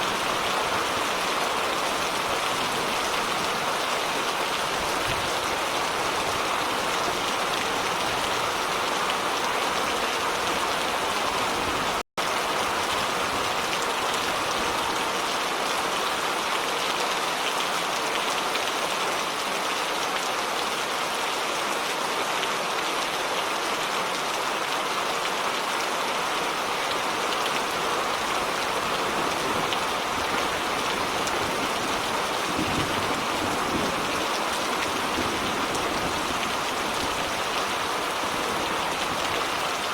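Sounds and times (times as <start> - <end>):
heavy rain pattering: 0.0 - 20.8, 26.4 - 39.9.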